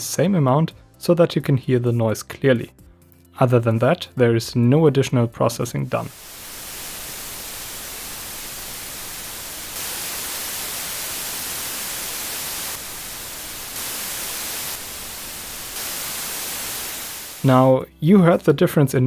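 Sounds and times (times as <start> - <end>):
steady preamp hiss: 5.8 - 17.8.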